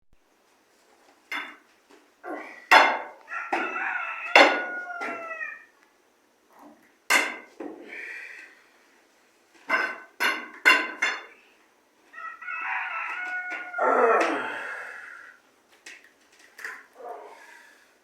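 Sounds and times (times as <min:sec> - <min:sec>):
chickens squawking: 0:02.3 - 0:05.7, 0:12.1 - 0:15.4
rooster crowing: 0:03.0 - 0:05.7, 0:12.1 - 0:15.4.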